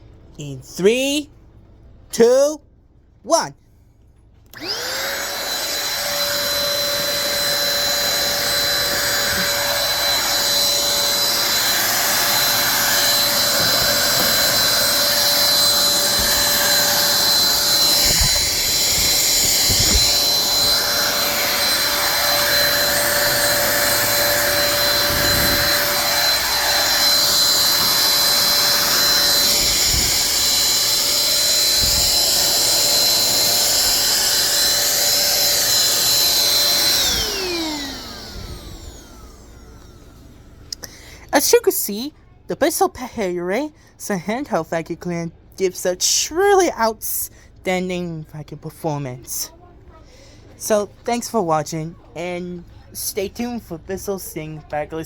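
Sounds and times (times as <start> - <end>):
handheld vacuum cleaner whine: 4.5 - 40.9.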